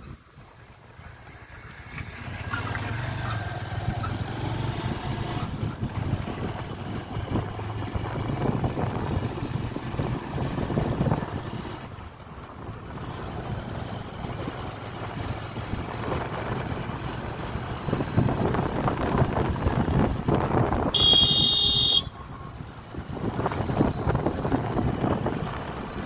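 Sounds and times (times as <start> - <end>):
wind buffeting microphone: 2.0 - 12.0, 12.6 - 21.0, 22.6 - 26.0
loud high-pitched tone: 21.0 - 22.2.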